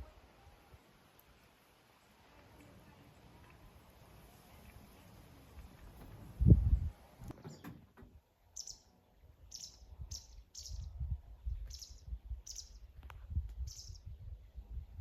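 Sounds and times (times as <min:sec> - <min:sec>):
small bird chirping: 0:08.5 - 0:13.0, 0:13.6 - 0:14.2.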